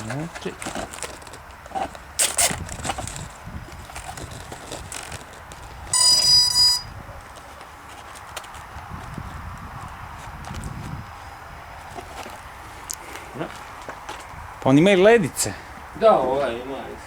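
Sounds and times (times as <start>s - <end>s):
electronic beep: 6.0s - 6.9s.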